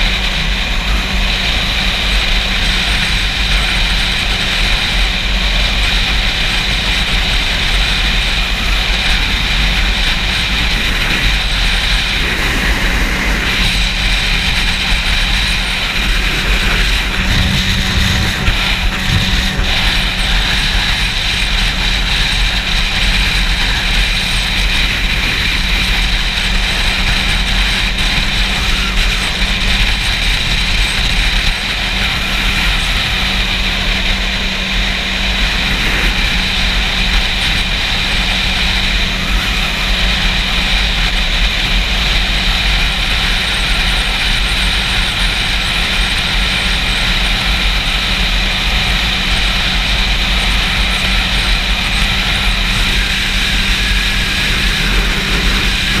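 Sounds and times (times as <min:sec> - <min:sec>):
motorcycle engine running: 0:00.0 - 0:56.0
wind buffeting microphone: 0:00.0 - 0:56.0.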